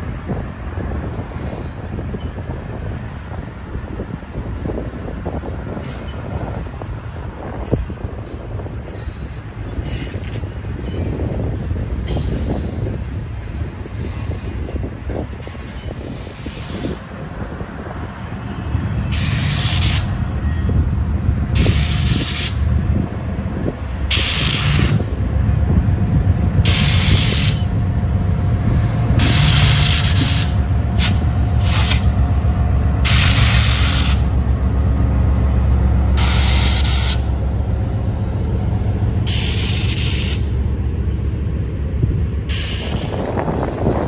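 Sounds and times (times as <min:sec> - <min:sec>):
diesel locomotive passing: 0:00.0 - 0:44.0
train wheels rumbling on rail: 0:00.0 - 0:44.0.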